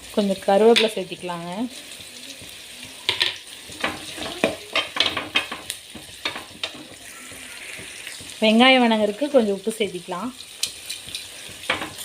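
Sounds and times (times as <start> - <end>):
onions sizzling in oil: 0.0 - 12.0
spoon scraping and clicking on pan: 10.6 - 12.0.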